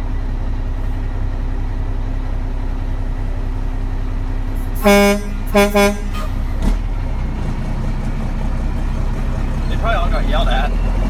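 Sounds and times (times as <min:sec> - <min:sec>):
road noise: 0:00.0 - 0:11.0
truck engine rumble: 0:00.0 - 0:11.0
truck horn honking: 0:04.6 - 0:06.6.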